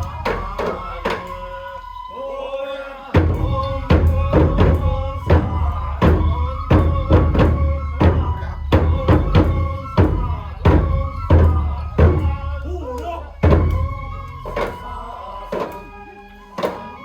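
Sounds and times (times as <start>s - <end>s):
taiko drum beat: 3.2s - 14.9s.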